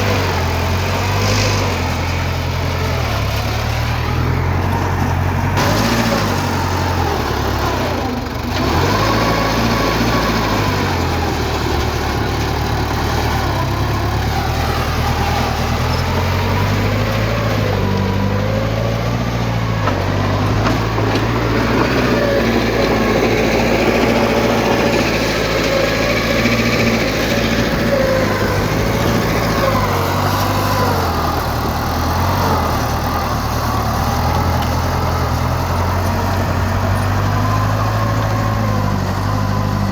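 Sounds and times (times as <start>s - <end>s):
heavy machinery diesel engine running: 0.0s - 39.9s.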